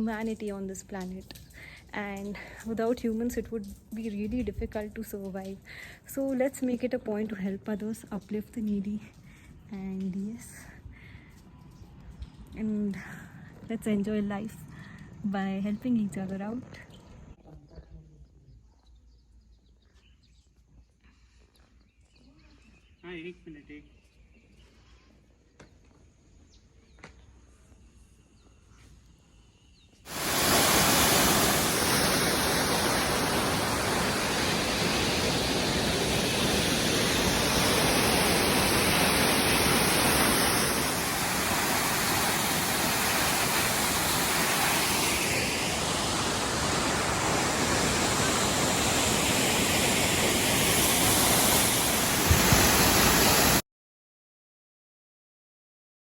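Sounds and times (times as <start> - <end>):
loud steady rushing noise: 30.1 - 53.6.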